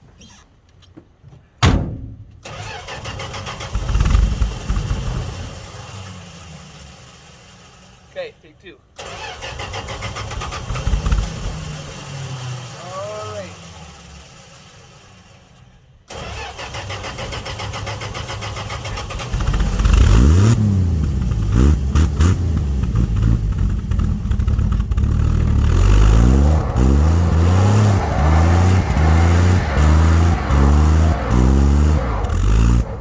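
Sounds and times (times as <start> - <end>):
pickup truck engine revving: 9.0 - 33.0.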